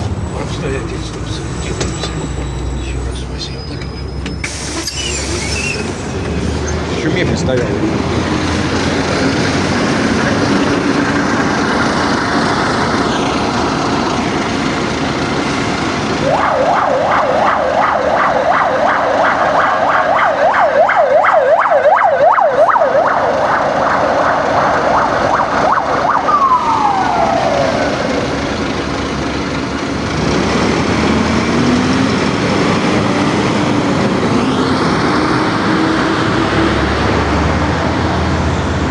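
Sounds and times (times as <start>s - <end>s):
bus engine: 0.0s - 38.9s
emergency siren yelping: 8.1s - 29.9s.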